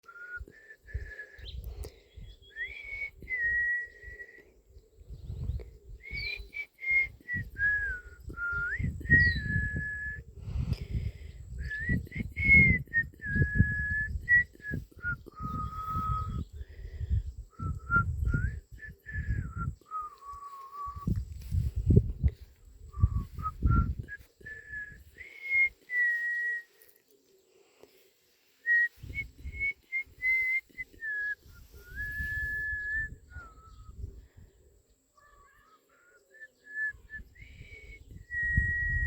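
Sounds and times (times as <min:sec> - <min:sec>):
person whistling a slow tune: 0:00.0 - 0:01.6, 0:02.2 - 0:04.5, 0:05.4 - 0:10.2, 0:11.5 - 0:16.8, 0:17.5 - 0:26.9, 0:28.6 - 0:34.1, 0:36.0 - 0:39.0.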